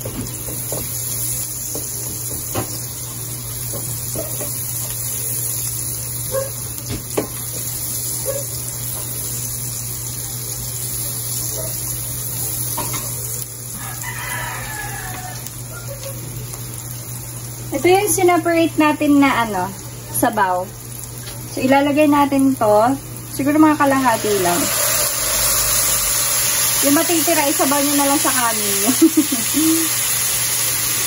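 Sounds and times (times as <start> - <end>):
onion sizzling in hot oil: 0.0 - 31.0.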